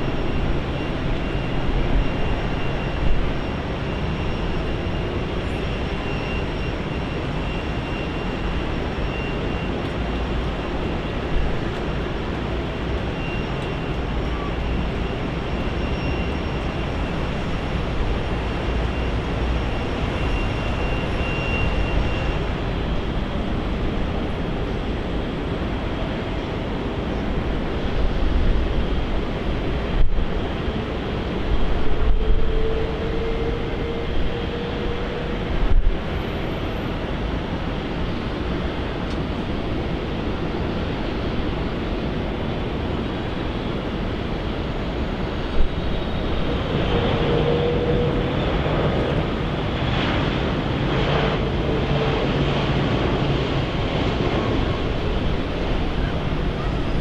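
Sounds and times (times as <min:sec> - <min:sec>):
faint high whine: 0:00.0 - 0:57.0
jet engine rushing: 0:00.0 - 0:57.0.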